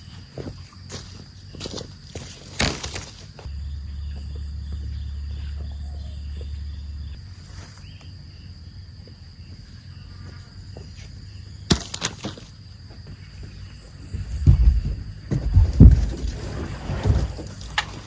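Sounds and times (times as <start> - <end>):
insects chirring: 0.0 - 18.0
low hum: 3.4 - 11.7
heavy thumps: 14.1 - 17.9.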